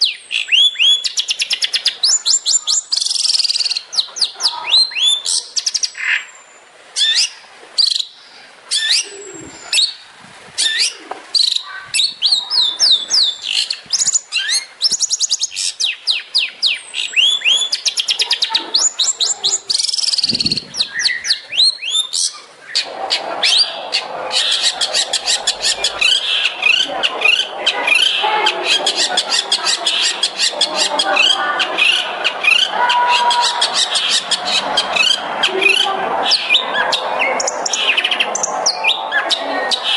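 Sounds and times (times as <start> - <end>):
shrike singing: 10.6 - 39.9.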